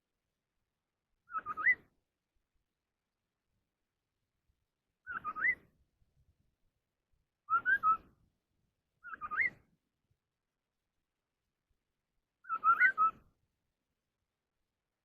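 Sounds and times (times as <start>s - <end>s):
bird whistling song: 1.2s - 2.0s, 5.0s - 5.8s, 7.4s - 8.2s, 9.0s - 9.7s, 12.4s - 13.4s.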